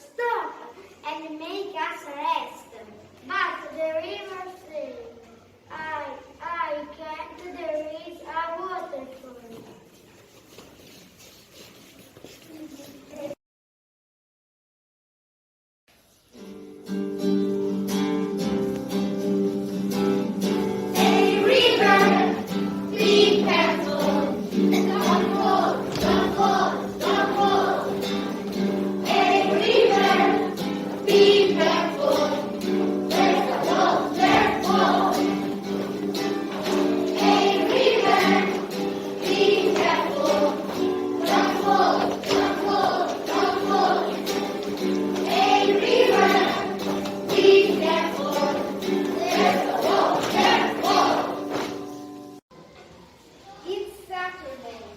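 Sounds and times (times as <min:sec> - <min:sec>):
instrumental accompaniment: 0:16.4 - 0:52.4
children's choir singing: 0:19.5 - 0:52.4.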